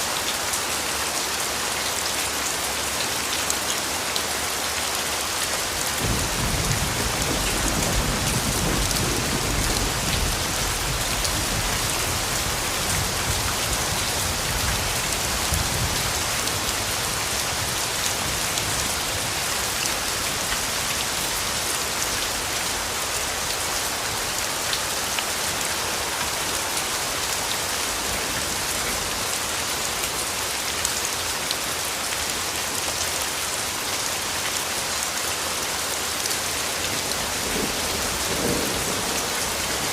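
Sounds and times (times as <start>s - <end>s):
steady rain falling: 0.0s - 39.9s
distant thunder rumble: 6.0s - 16.6s.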